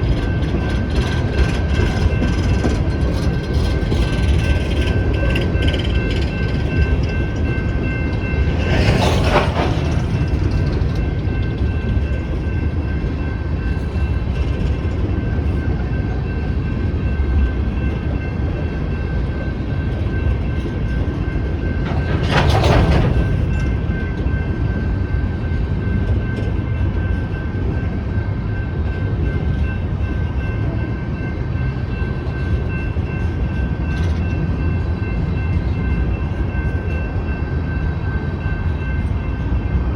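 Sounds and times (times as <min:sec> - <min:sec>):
crossing bell ringing: 0:00.0 - 0:39.9
train wheels rumbling on rail: 0:00.0 - 0:39.9.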